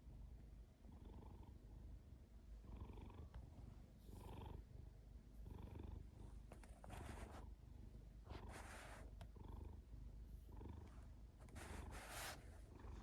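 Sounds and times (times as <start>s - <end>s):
cat purring: 4.1s - 4.7s.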